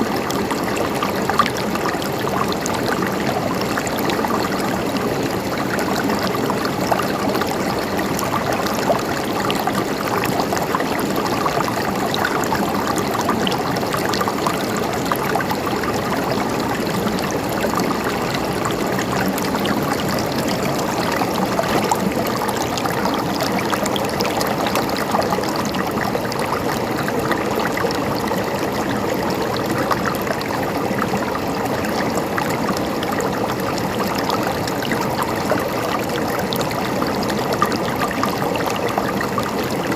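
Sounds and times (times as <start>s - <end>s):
stream water gurgling: 0.0s - 39.9s.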